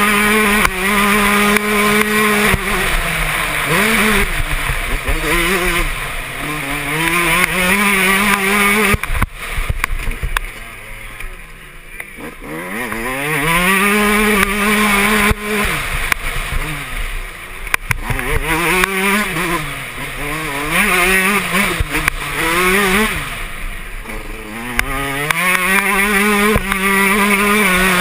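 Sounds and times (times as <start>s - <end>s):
two-stroke motorcycle engine revving: 0.0s - 28.0s.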